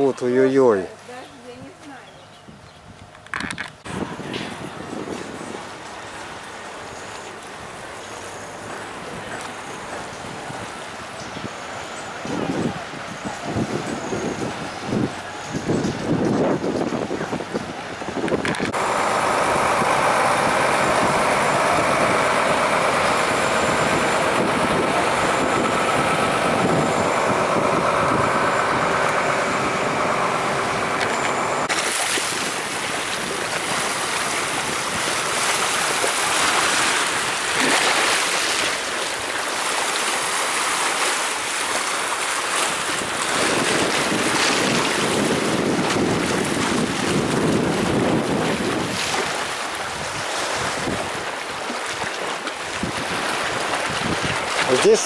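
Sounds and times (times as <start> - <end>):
wind rumbling on microphone: 1.1 - 55.0
surf waves: 3.8 - 55.0.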